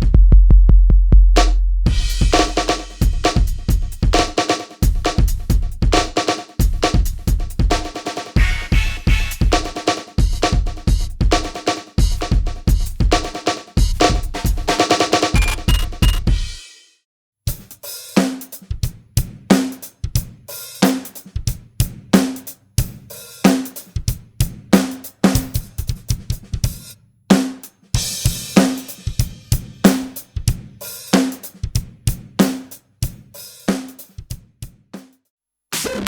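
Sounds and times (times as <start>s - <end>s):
electronic drum kit groove: 15.4s - 16.3s.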